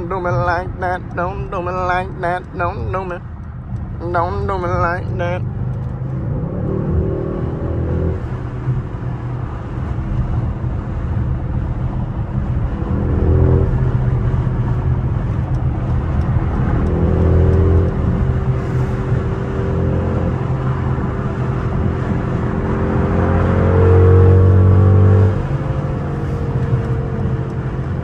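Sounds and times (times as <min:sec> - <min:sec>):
car engine accelerating: 0:00.0 - 0:28.0
road and tyre rumble: 0:00.0 - 0:28.0.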